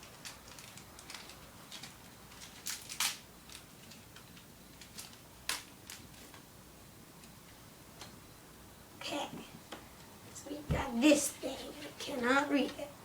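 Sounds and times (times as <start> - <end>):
foil wrapper tearing and crinkling: 0.0 - 4.0.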